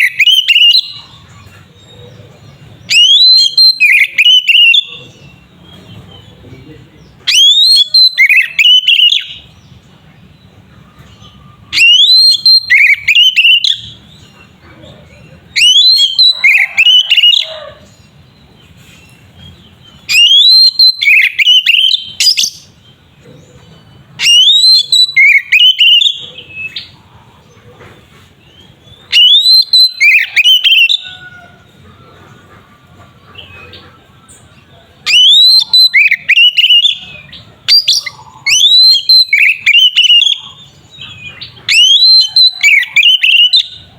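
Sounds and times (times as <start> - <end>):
bird singing whistled phrases: 0.0 - 1.2, 2.9 - 5.4, 7.2 - 9.5, 11.2 - 14.0, 15.5 - 17.6, 20.1 - 22.8, 24.2 - 26.9, 29.1 - 31.2, 35.1 - 43.8.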